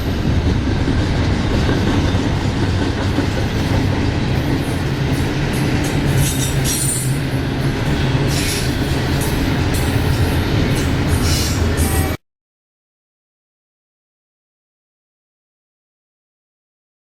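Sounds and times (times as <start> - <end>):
train rumbling on rails: 0.0 - 12.2.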